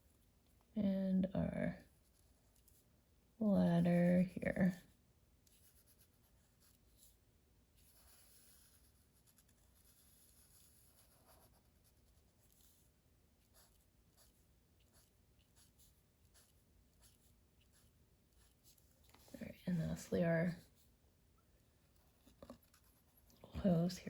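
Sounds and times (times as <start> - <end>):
marker scratching on paper: 5.5 - 7.1, 7.8 - 12.8, 13.4 - 20.9.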